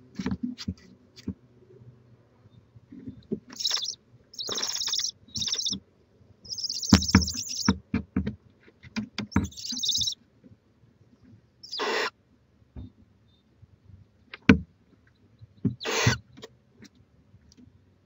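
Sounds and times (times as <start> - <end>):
owls hissing screeches: 3.6 - 5.8, 6.5 - 7.7, 9.4 - 10.2, 11.6 - 12.1, 15.8 - 16.2
sharp knocks and thumps: 6.6 - 10.2.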